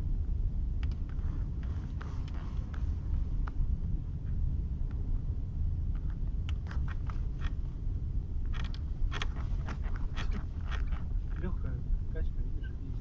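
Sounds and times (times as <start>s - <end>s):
low rumble of road noise: 0.0s - 13.0s
car seat creaking: 1.1s - 3.0s, 8.7s - 11.5s.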